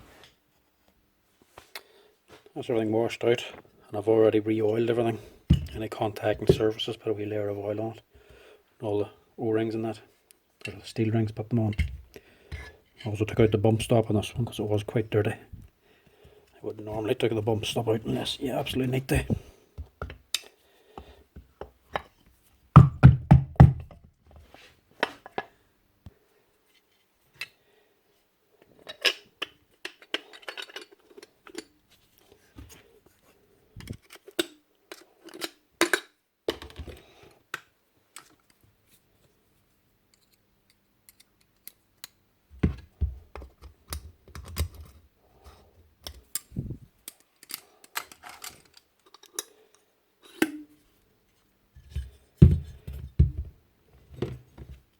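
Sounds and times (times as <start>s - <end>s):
small metal parts clicking: 28.9s - 31.8s, 47.1s - 49.5s.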